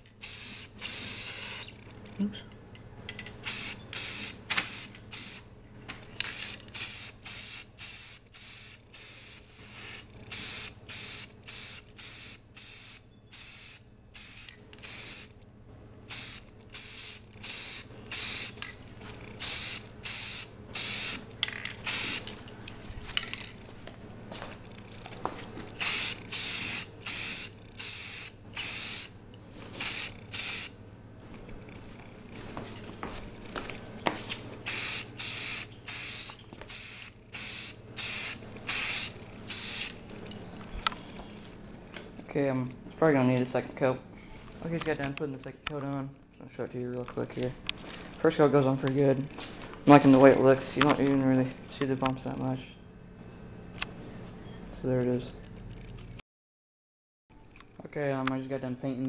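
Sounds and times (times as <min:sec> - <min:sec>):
spray paint can hissing: 0:00.0 - 0:01.8, 0:03.4 - 0:05.5, 0:06.2 - 0:15.4, 0:16.1 - 0:18.7, 0:19.4 - 0:22.3, 0:25.8 - 0:29.2, 0:29.8 - 0:30.8, 0:34.6 - 0:40.0.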